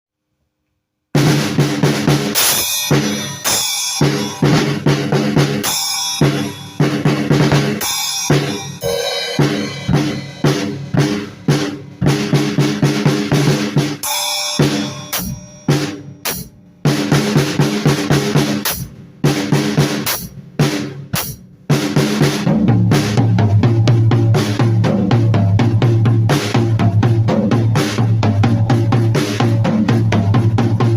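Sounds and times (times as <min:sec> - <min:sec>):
snare drum hits: 0:01.2 - 0:22.4
bass drum hits: 0:06.9 - 0:13.7.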